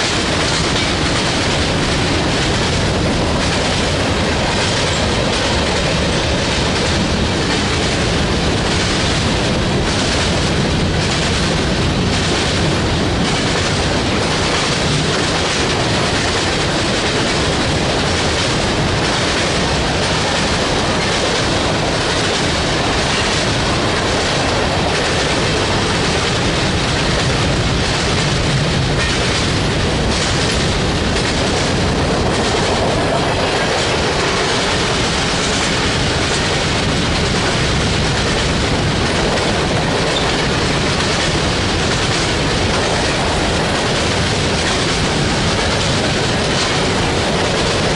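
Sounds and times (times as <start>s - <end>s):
train cars rumbling and rattling: 0.0s - 47.9s.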